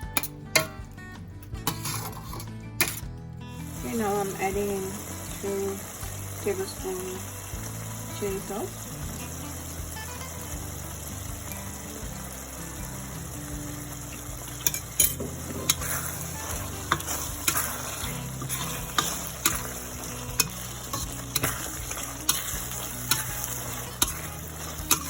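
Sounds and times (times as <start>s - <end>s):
sauce sizzling in a pan: 3.6s - 25.0s
utensil tapping against pan: 16.9s - 25.0s.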